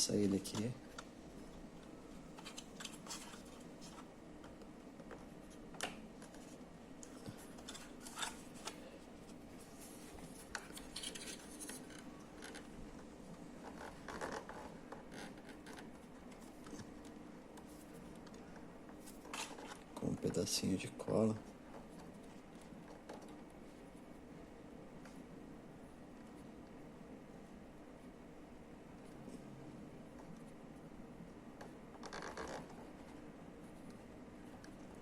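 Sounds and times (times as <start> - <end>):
plastic parts clicking and scratching: 2.3 - 8.8, 10.4 - 12.7.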